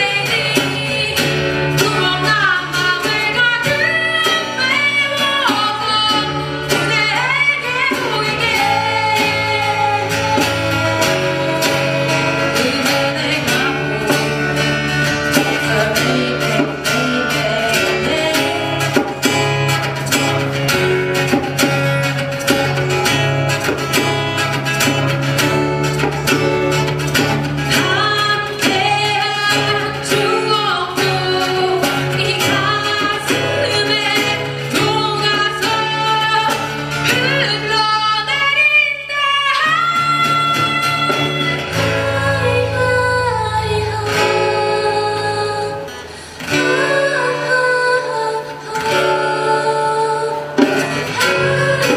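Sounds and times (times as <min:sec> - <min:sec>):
person singing: 0:00.0 - 0:22.9, 0:23.6 - 0:51.9
acoustic guitars playing: 0:00.0 - 0:51.9.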